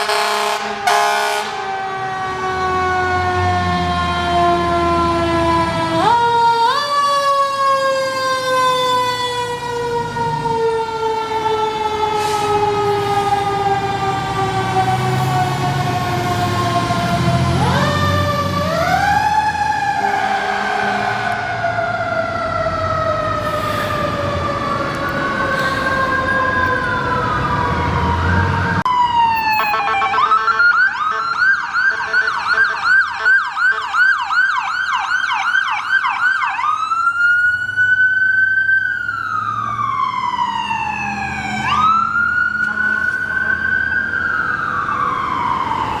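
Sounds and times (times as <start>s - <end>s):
fire engine siren winding: 0.0s - 46.0s
siren wailing: 0.0s - 46.0s
electronic siren yelping: 16.6s - 46.0s.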